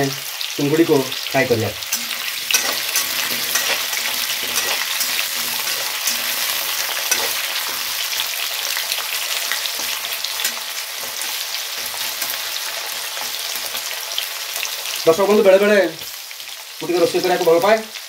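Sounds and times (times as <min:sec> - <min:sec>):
potatoes sizzling in oil: 0:00.0 - 0:18.0
stirring in pan: 0:01.3 - 0:15.0.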